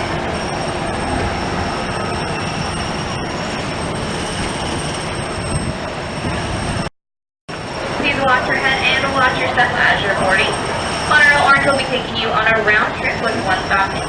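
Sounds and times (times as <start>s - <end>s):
high-pitched whine: 0.0s - 6.9s, 7.5s - 14.0s
monorail train rumbling: 0.0s - 6.9s, 7.5s - 14.0s.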